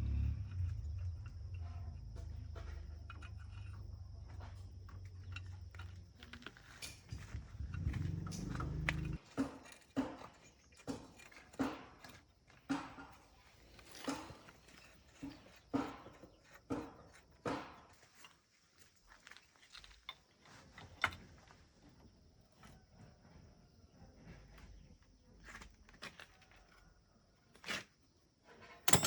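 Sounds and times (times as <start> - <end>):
low motor hum: 0.0 - 5.7, 7.1 - 9.2.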